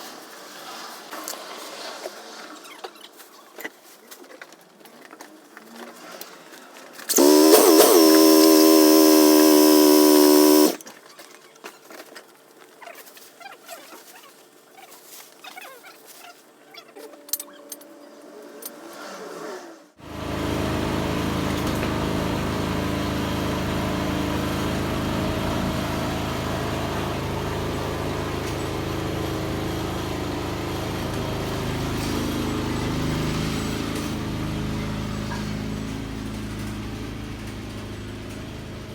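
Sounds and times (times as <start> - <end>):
loud humming tone: 7.1 - 10.8.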